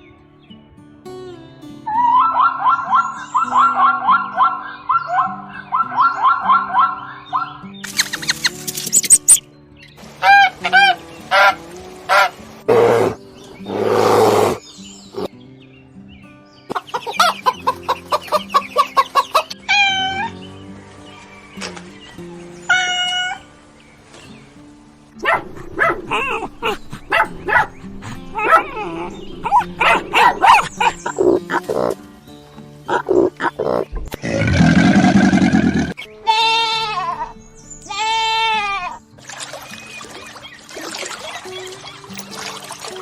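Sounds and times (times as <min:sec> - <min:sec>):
background music: 0:00.0 - 0:43.0
dog barking: 0:02.0 - 0:07.6, 0:25.2 - 0:32.0
short bird calls: 0:07.0 - 0:09.4, 0:25.4 - 0:32.0.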